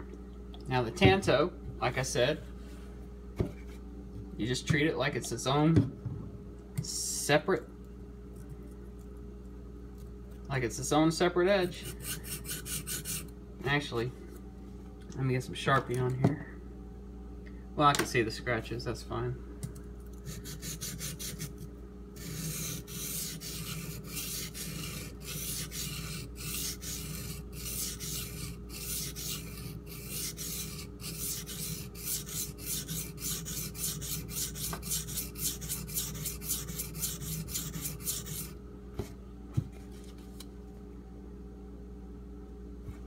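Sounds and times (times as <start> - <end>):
knife blade rasping on whetstone: 11.8 - 13.3, 20.3 - 21.6, 22.2 - 38.5.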